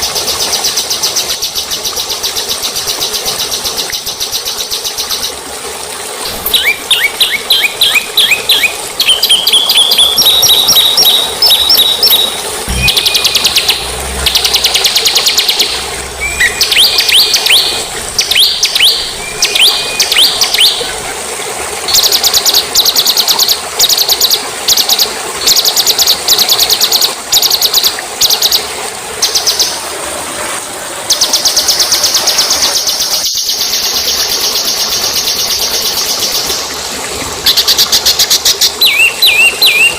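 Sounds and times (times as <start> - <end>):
songbird whistles and trills: 6.4 - 13.8, 14.6 - 20.9, 38.8 - 39.9.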